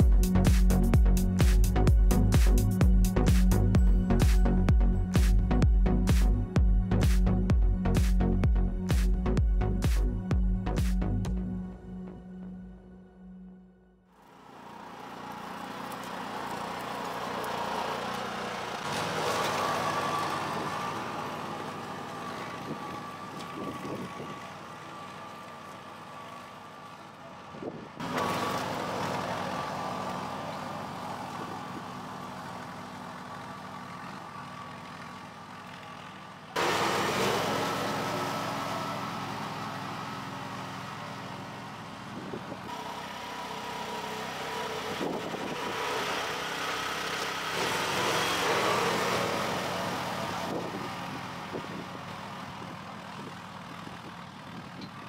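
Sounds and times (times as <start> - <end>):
tractor engine under load: 14.2 - 55.0.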